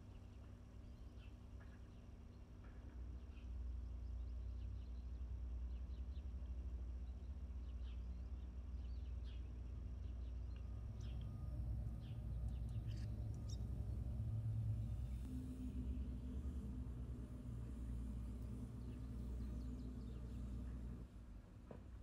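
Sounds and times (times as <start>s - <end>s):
small birds chirping: 3.2s - 21.1s
steady low rumble: 8.9s - 22.0s.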